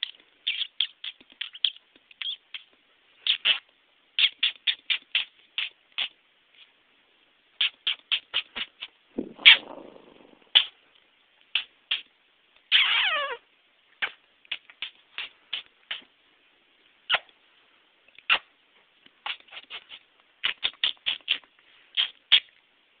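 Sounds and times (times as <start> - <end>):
person making mouth clicks: 7.6 - 10.8, 14.0 - 16.1
rough mouth sound: 7.6 - 10.8.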